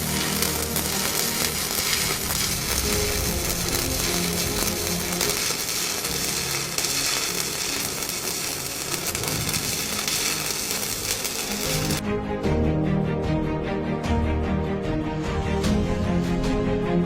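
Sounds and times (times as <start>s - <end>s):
welding arc crackling hiss: 0.0s - 12.0s.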